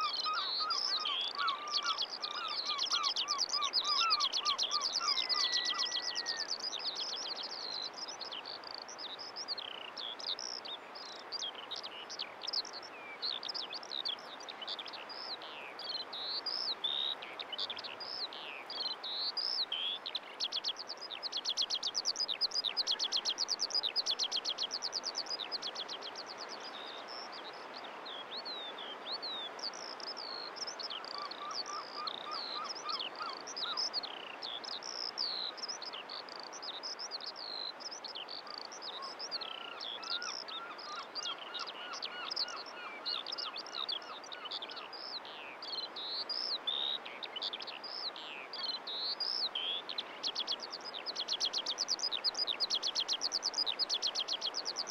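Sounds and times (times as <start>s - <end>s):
songbirds chirping and trilling: 0.0s - 54.9s
steady background hiss: 0.0s - 54.9s.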